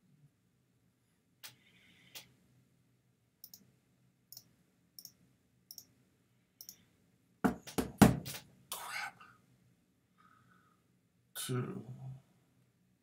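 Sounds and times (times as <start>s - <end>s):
computer mouse clicking: 3.4s - 3.7s, 4.3s - 5.9s, 6.6s - 6.8s.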